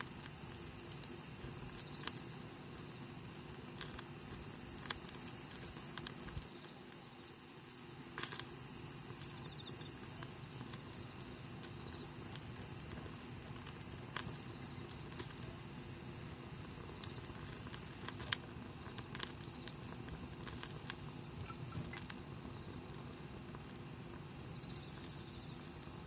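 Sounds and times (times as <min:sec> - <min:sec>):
high-pitched hiss: 0:00.0 - 0:18.0.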